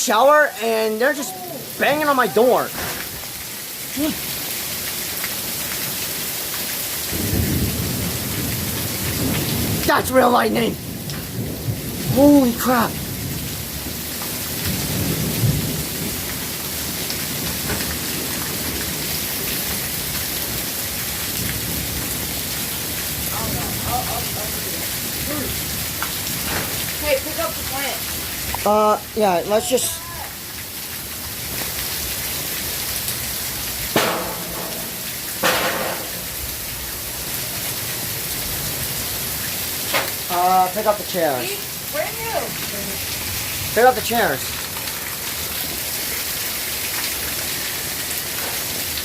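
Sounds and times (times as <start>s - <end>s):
heavy rain: 0.0s - 49.0s
low thunder rumble: 7.1s - 27.0s.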